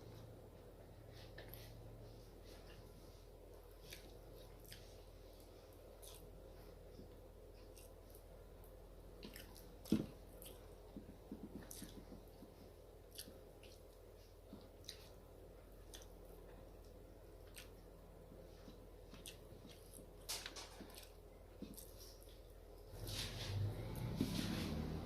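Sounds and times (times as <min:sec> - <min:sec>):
person chewing food: 0:02.5 - 0:22.6.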